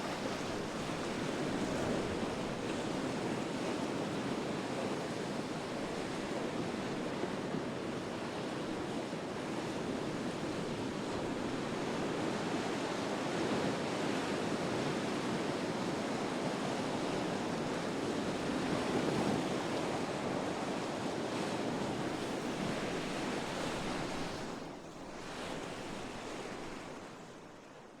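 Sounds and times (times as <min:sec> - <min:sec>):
waves breaking: 0:21.6 - 0:27.7.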